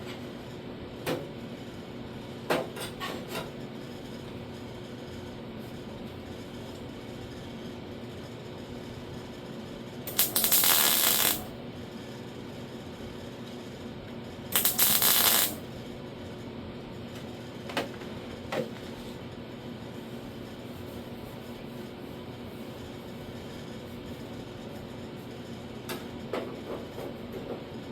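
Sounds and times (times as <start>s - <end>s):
welding crackle: 10.1s - 11.6s, 14.6s - 15.6s
short clicks: 14.6s - 15.6s.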